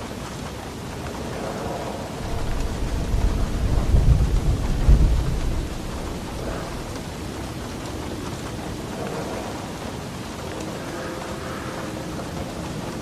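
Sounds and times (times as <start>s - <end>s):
heavy rain on a roof: 0.0s - 13.0s
thunder rolling: 2.2s - 7.5s.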